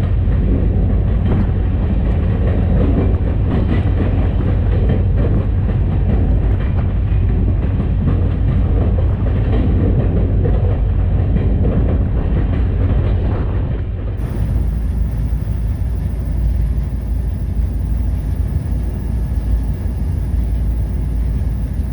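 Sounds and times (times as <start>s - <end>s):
diesel locomotive engine rumble: 0.0s - 21.9s
wheel and rail noise: 0.0s - 21.9s.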